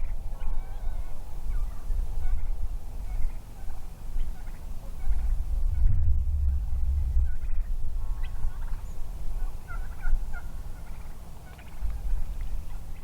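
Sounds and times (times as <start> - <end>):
distant wild turkeys calling: 0.0 - 5.5, 6.5 - 13.0
steady low rumble: 4.4 - 12.8.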